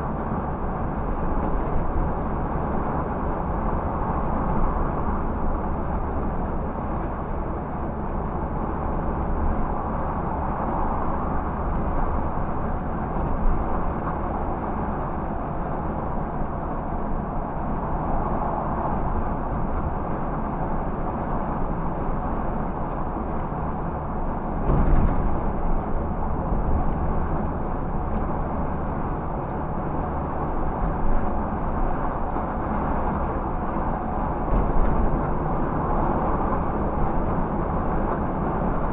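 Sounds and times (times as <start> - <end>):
road noise: 0.0 - 38.9.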